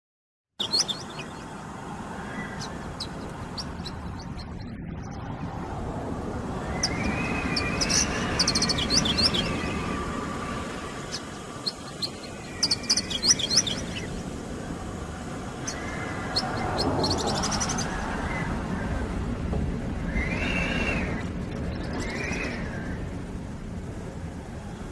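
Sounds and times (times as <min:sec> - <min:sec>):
bird chirping and trilling: 0:00.6 - 0:05.4, 0:06.6 - 0:14.2, 0:15.6 - 0:18.5, 0:20.0 - 0:23.0
wind blowing: 0:00.6 - 0:24.9.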